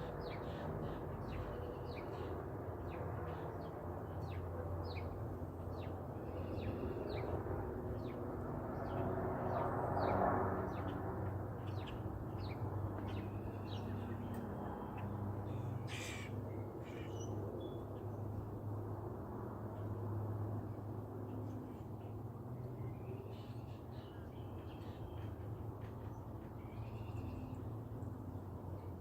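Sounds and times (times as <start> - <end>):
birds calling: 11.6 - 17.3.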